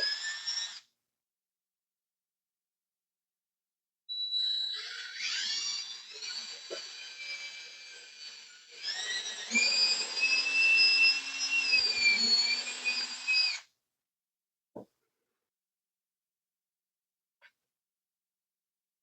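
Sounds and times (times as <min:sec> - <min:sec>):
power drill whining: 0:00.0 - 0:00.8, 0:04.3 - 0:13.7.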